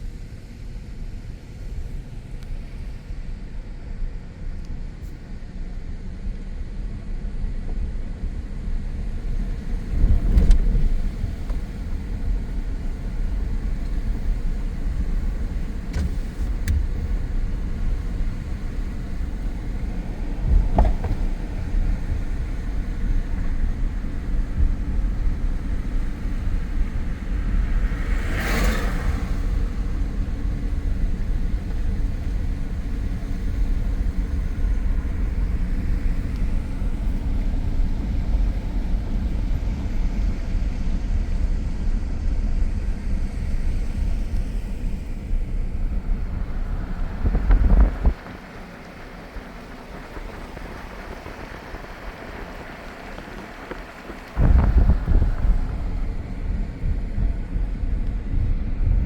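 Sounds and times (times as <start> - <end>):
car road and engine rumble: 0.0 - 59.0
whoosh of passing vehicle: 13.1 - 32.2, 43.7 - 59.0.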